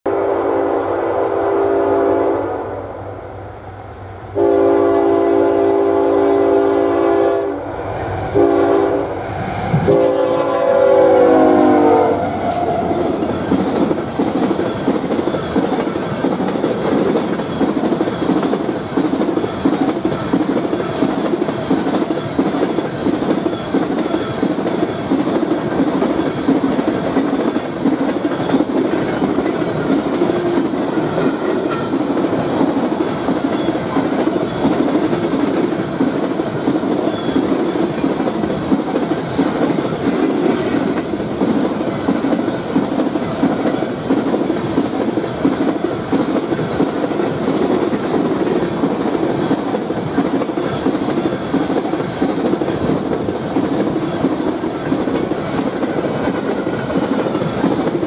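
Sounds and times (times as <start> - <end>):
locomotive air horn blasts: 0.1 - 3.1, 4.4 - 7.7, 8.3 - 13.1
train wheels clacking over rail joints: 11.4 - 58.0.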